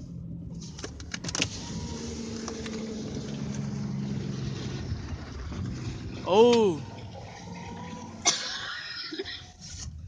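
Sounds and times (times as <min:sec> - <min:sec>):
car engine humming: 0:00.0 - 0:10.0.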